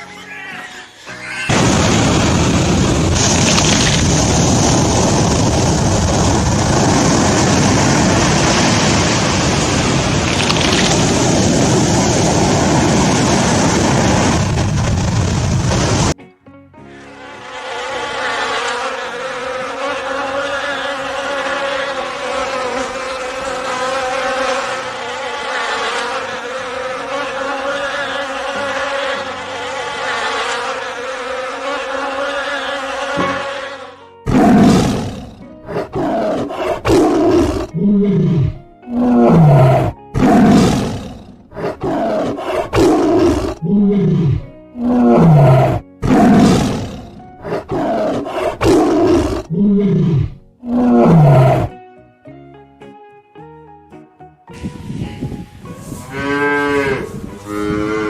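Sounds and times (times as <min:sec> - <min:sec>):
large animal roaring: 0:30.4 - 0:51.8.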